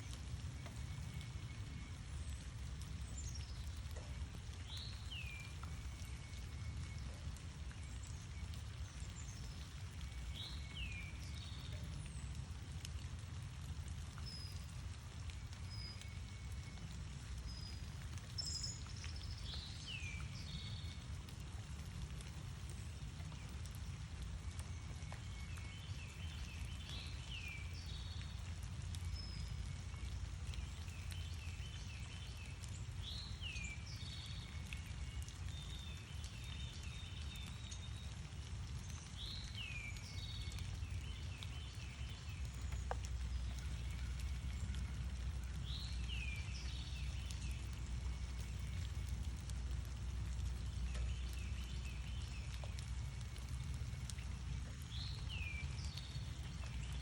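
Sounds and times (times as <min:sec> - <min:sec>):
low background rumble: 0:40.0 - 0:57.0.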